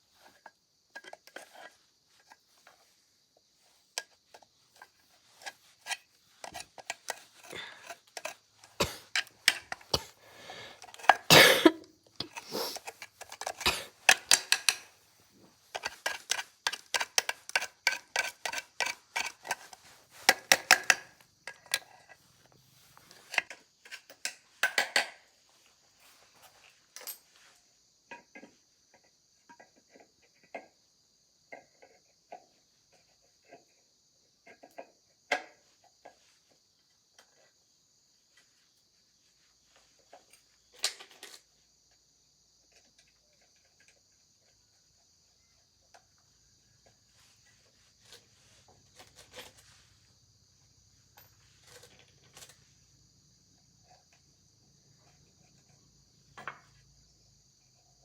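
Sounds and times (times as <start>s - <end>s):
high insect chirring: 0.1s - 14.9s.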